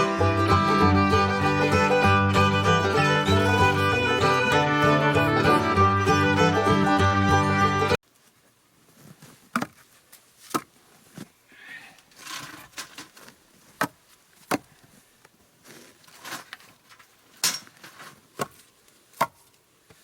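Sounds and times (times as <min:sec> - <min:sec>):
wood rustling and scraping: 0:08.1 - 0:11.4, 0:12.0 - 0:19.0.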